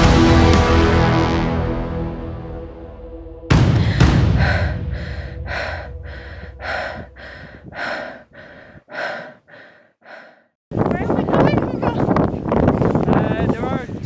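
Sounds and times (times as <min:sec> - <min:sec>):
person panting hard: 0:03.6 - 0:10.6.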